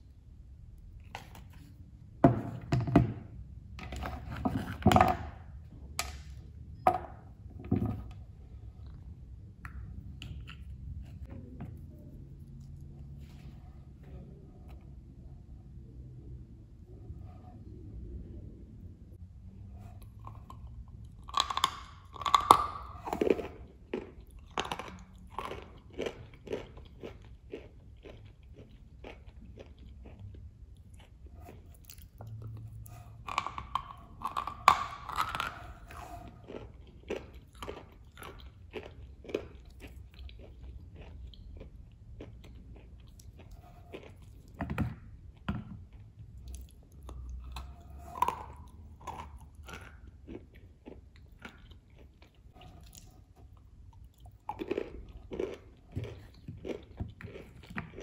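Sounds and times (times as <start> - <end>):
soft crackling chewing: 8.2 - 15.0, 19.8 - 58.0
crunchy cookie bites: 20.1 - 58.0.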